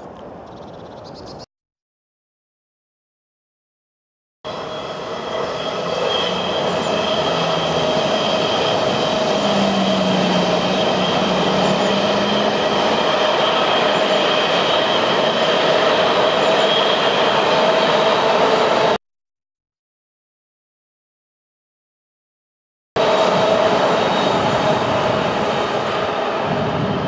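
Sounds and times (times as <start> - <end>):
high whine: 4.5 - 19.0.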